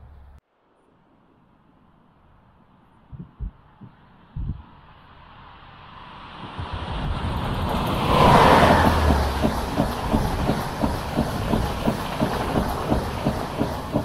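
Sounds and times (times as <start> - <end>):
locomotive rushing past: 6.5 - 14.0
clickety-clack of train wheels: 7.6 - 14.0.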